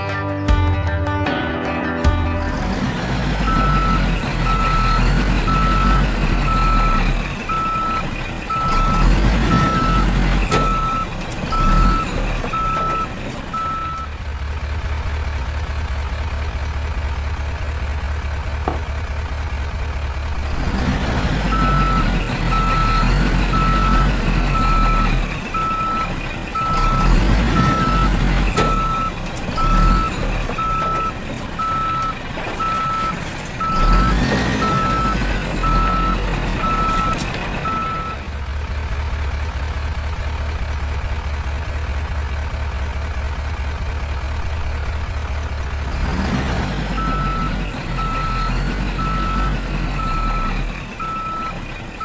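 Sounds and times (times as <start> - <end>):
reversing alarm beeping: 3.4 - 14.1, 21.5 - 38.2, 47.0 - 51.6.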